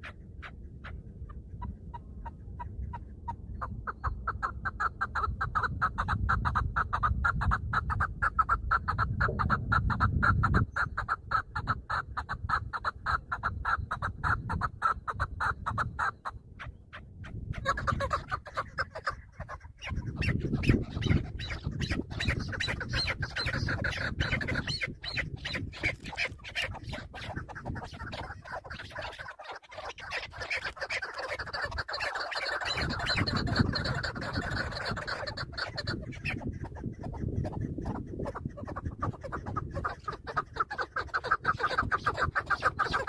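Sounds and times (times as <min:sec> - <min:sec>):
low rumble: 0:09.1 - 0:10.4.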